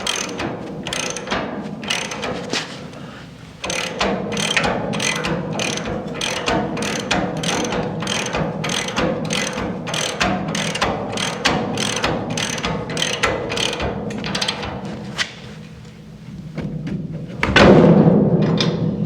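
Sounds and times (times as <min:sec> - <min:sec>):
ratchet wrench clicking: 0:00.0 - 0:02.6, 0:03.6 - 0:14.7.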